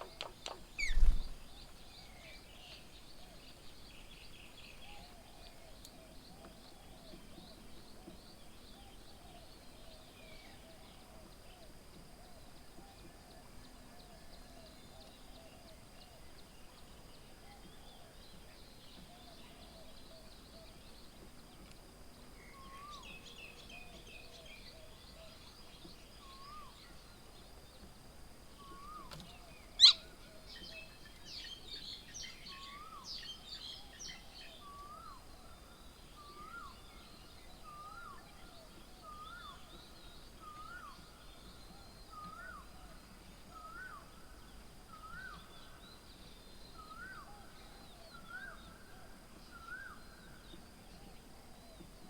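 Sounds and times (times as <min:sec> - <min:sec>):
birds chirping and calling: 0:00.0 - 0:01.4, 0:28.8 - 0:30.1.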